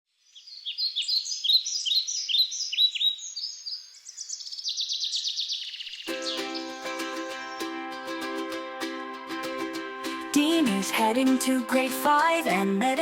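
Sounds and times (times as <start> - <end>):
songbird chirping and trilling: 0.1 - 8.1
music: 6.1 - 13.0.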